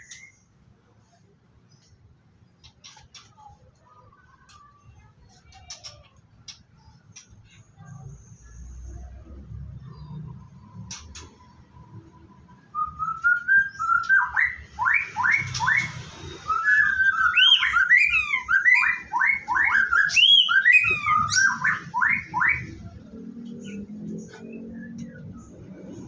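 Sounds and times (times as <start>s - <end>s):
bird singing whistled notes: 12.7s - 22.9s.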